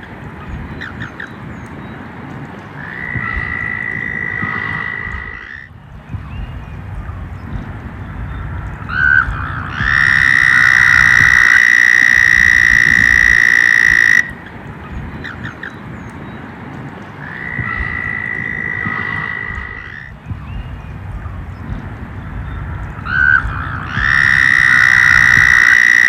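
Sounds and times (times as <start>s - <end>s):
frog trilling: 2.8s - 5.8s, 8.9s - 14.4s, 17.2s - 20.2s, 23.1s - 26.0s
low background rumble: 3.1s - 16.3s, 17.5s - 25.8s.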